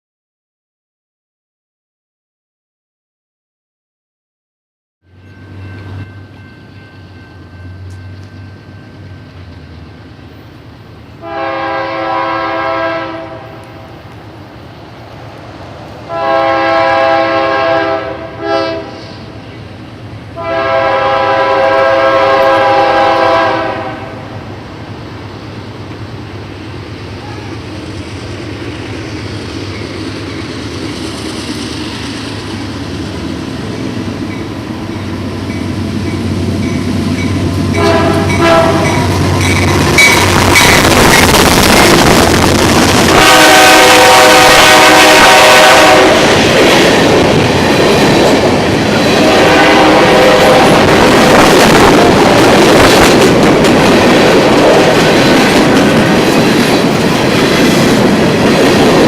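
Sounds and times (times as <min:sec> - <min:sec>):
train rumble: 0:05.0 - 0:59.0
train air horn: 0:11.2 - 0:14.0, 0:16.1 - 0:19.4, 0:20.4 - 0:24.3, 0:37.7 - 0:39.1, 0:43.1 - 0:46.4, 0:49.1 - 0:51.0.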